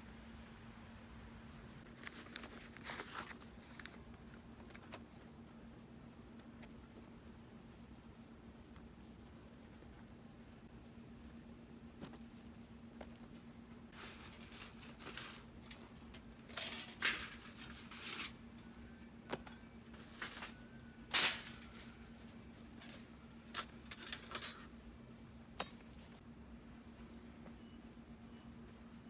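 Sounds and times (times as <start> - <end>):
faint steady hum: 0.0 - 29.0
rustling and scraping of gear: 1.9 - 5.4, 13.9 - 24.8
light clinks of utensils: 19.3 - 19.7.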